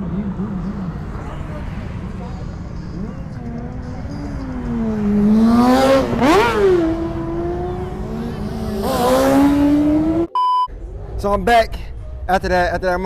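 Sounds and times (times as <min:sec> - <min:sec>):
car engine revving hard: 0:04.6 - 0:10.3.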